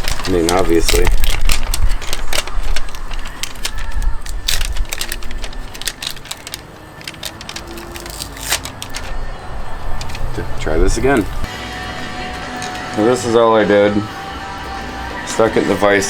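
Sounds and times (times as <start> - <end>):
tools clicking and rattling: 0.0 - 11.5.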